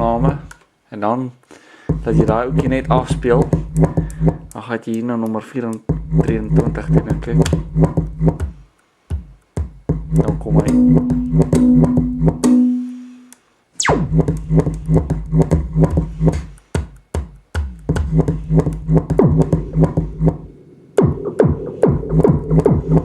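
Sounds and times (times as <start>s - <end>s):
electronic synthesizer pattern: 2.0s - 4.5s, 10.0s - 12.5s, 13.8s - 16.4s, 18.1s - 23.0s.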